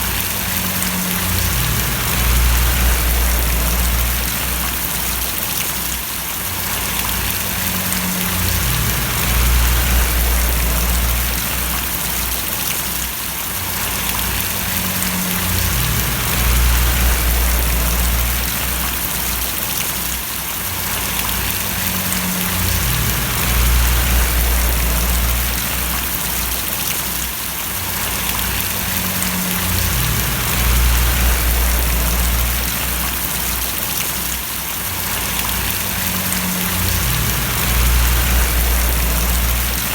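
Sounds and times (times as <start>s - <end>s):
low rumble: 0.0s - 5.3s, 7.0s - 12.6s, 13.9s - 19.3s, 21.4s - 26.8s, 28.2s - 33.6s, 35.4s - 39.9s
heavy rain falling: 0.0s - 39.9s.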